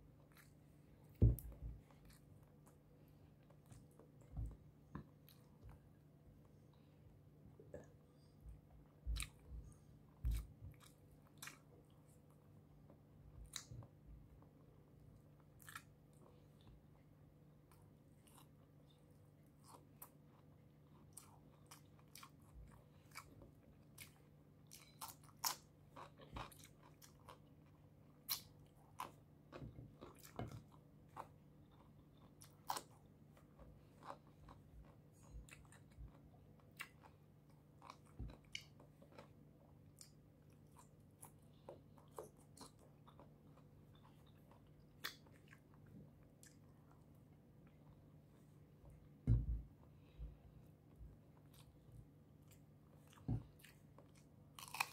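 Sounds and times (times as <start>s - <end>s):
person biting and chewing food: 52.4s - 54.9s.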